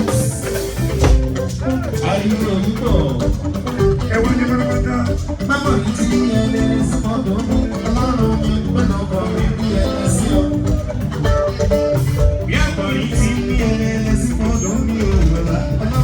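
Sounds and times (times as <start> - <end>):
band music with plucked guitars: 0.0 - 16.0.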